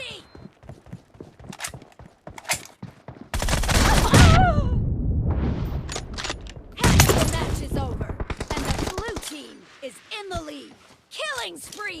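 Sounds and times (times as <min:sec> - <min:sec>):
video game gunfire: 0:03.3 - 0:04.4.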